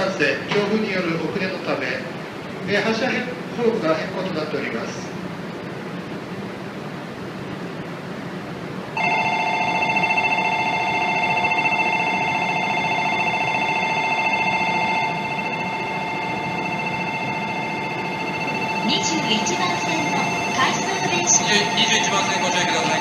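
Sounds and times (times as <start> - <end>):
electronic trilling departure bell: 9.0 - 23.0.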